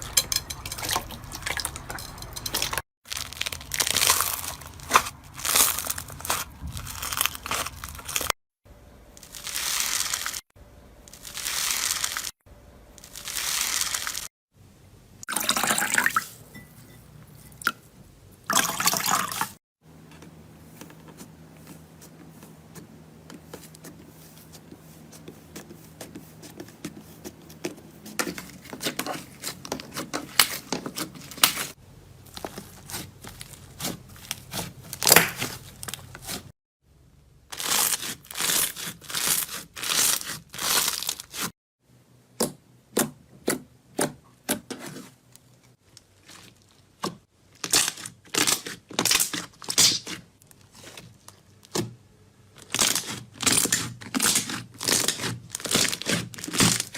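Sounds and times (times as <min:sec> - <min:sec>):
slime squishing: 0:03.1 - 0:08.3, 0:20.6 - 0:36.5, 0:37.5 - 0:41.5, 0:52.6 - 0:56.9.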